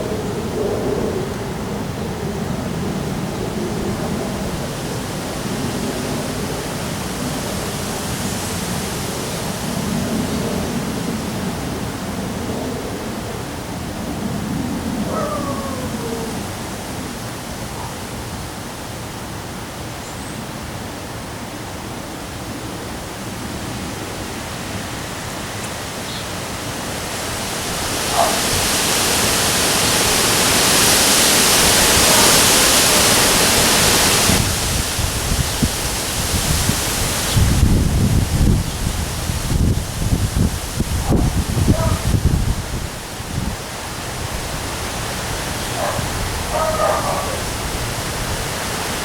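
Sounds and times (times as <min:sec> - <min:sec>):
wind buffeting microphone: 0:00.0 - 0:18.8, 0:26.4 - 0:49.0
storm rain and wind hiss: 0:00.0 - 0:49.0.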